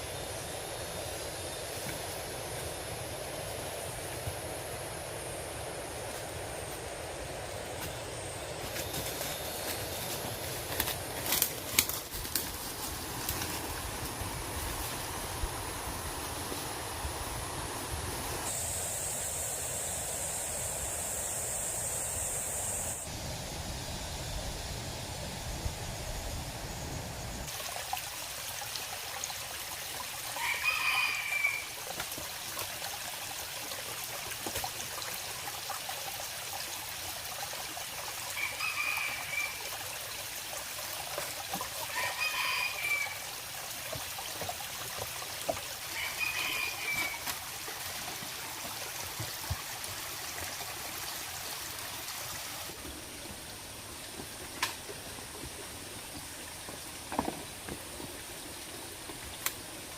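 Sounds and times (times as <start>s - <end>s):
steady hiss: 0.0s - 29.3s.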